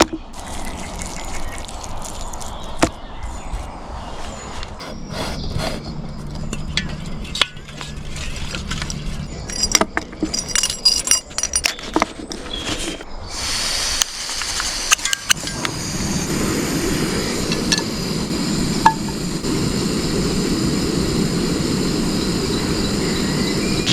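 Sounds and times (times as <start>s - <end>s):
metal cookware clinking: 6.5s - 11.9s
steady hiss: 13.3s - 23.9s.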